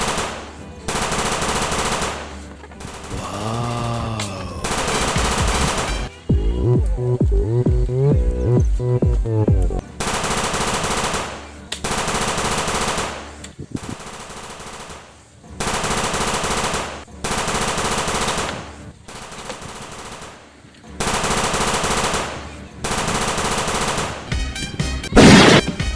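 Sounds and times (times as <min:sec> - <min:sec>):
music: 0:00.0 - 0:14.0, 0:17.1 - 0:25.9
balloons letting out air: 0:25.1 - 0:25.9.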